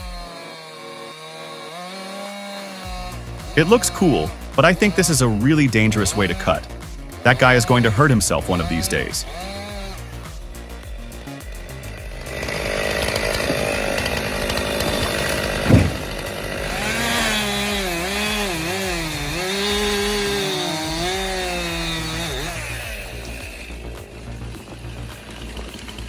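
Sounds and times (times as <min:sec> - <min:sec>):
chainsaw cutting wood: 0:00.0 - 0:26.0
sharp knock: 0:15.6 - 0:16.3.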